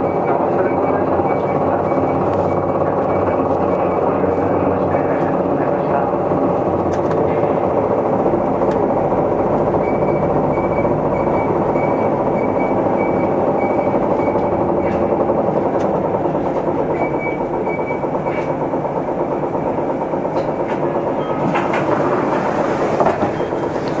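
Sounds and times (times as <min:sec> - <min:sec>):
bus diesel engine running: 0:00.0 - 0:24.0
high beeping tone: 0:09.7 - 0:15.2.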